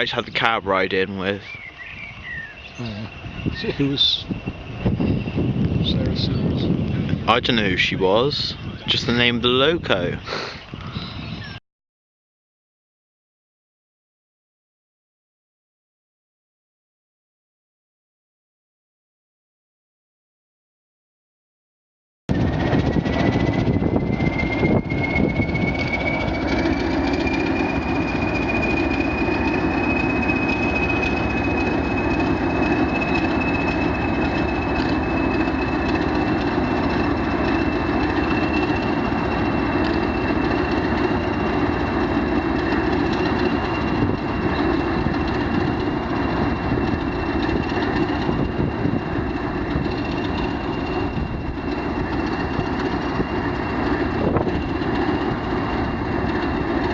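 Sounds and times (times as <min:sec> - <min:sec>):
high whine: 0:00.0 - 0:10.2, 0:22.3 - 0:56.9
train rumbling: 0:00.0 - 0:11.6, 0:22.3 - 0:56.9.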